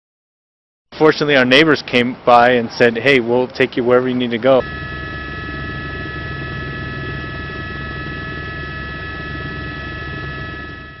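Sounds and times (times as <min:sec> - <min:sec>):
engine drone with low flutter: 0:04.6 - 0:11.0
high-pitched whine: 0:04.6 - 0:11.0.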